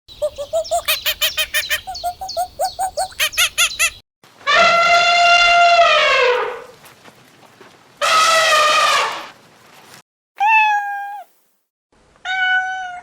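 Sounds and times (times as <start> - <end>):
farm animal calls: 0.1 - 4.0.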